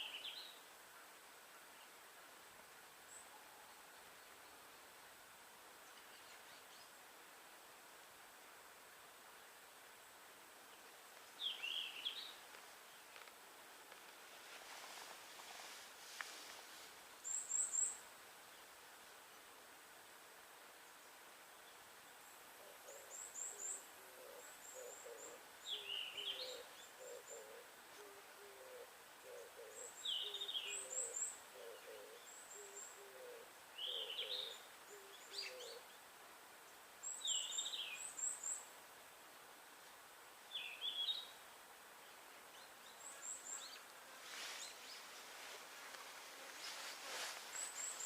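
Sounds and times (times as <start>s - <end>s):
brief rustle: 12.5s - 17.0s, 44.2s - 48.0s
low hooting bird call: 22.6s - 35.9s.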